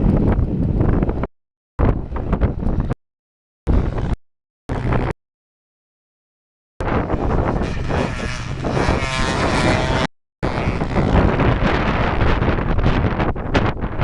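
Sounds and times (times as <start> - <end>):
wind buffeting microphone: 0.0 - 3.0, 3.7 - 5.2, 6.8 - 14.0
motorcycle engine revving: 3.7 - 5.2, 6.8 - 12.6.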